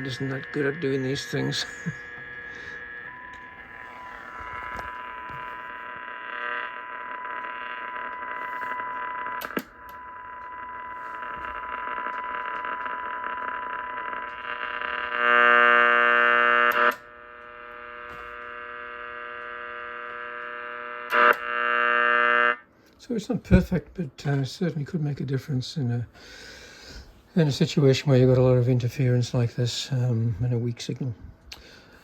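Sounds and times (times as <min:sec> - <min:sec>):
steady test tone from loudspeaker: 0:00.0 - 0:06.0
harsh electrical interference buzz: 0:00.0 - 0:22.7.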